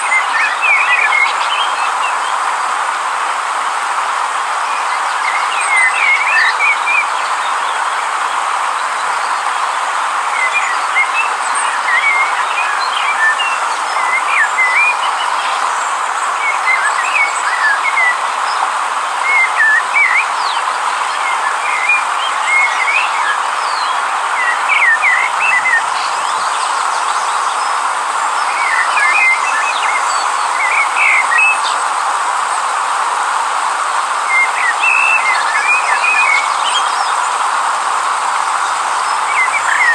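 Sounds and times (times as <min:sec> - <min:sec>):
birds chirping: 0:00.0 - 0:39.9
river water rushing: 0:00.0 - 0:39.9.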